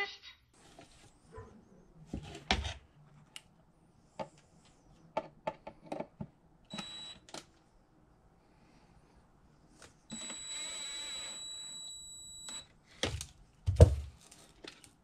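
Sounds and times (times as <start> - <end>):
cordless drill whir: 10.1 - 12.6.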